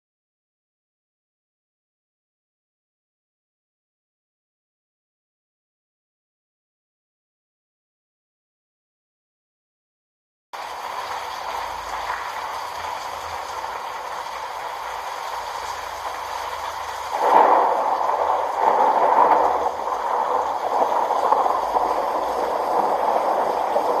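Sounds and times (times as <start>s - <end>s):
steady rushing noise: 10.6s - 24.0s.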